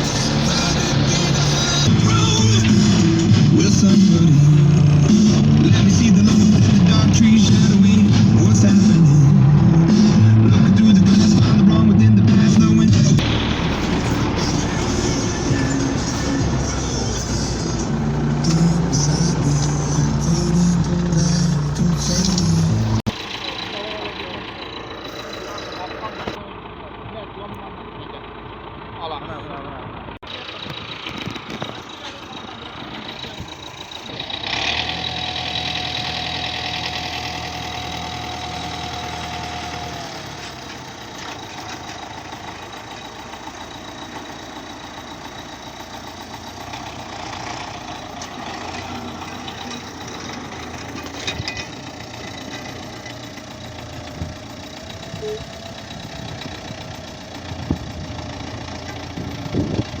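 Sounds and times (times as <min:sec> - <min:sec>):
steady whine: 0:00.0 - 0:26.4
tractor diesel engine running: 0:00.0 - 1:00.0.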